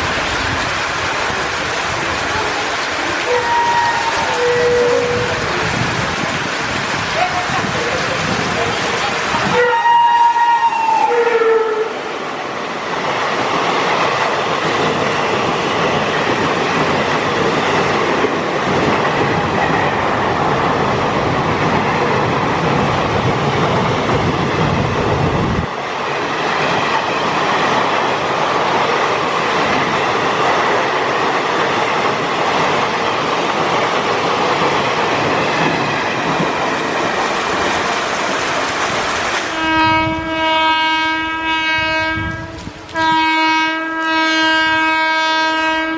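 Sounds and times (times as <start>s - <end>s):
heavy rain: 0.0s - 45.9s
trains passing at speed: 0.0s - 45.9s
locomotive horn: 3.2s - 5.4s, 9.5s - 12.1s, 39.5s - 45.9s.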